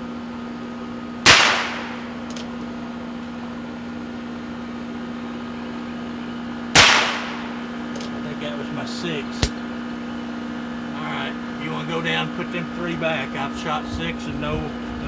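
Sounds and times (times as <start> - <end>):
air-conditioner hum: 0.0 - 15.0
revolver shots with echo: 1.3 - 2.2, 6.8 - 7.6.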